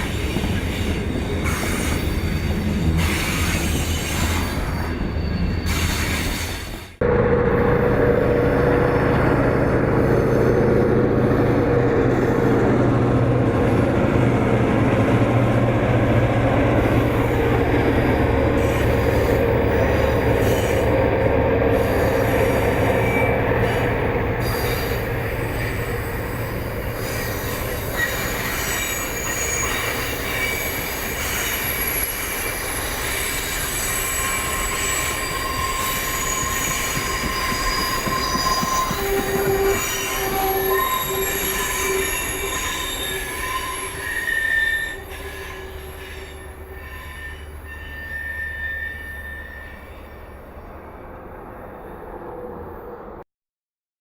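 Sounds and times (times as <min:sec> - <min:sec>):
wheel squeals against rail: 0:00.0 - 0:07.0, 0:18.5 - 0:50.7
diesel locomotive engines droning: 0:00.0 - 0:53.2
railcars rolling by: 0:00.0 - 0:53.2.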